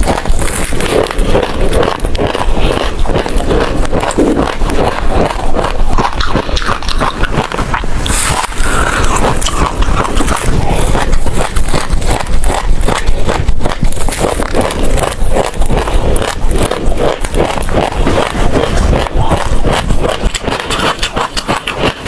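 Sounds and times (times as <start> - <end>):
chewing with seeds crunching: 0.0 - 22.0.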